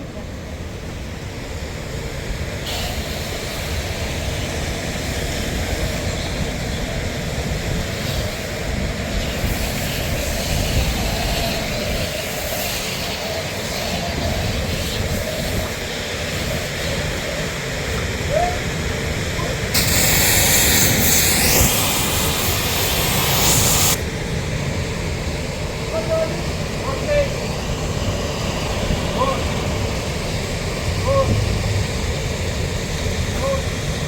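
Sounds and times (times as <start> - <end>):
jet-wash lance spraying hiss: 0.0 - 34.0
low rumble: 28.7 - 33.3.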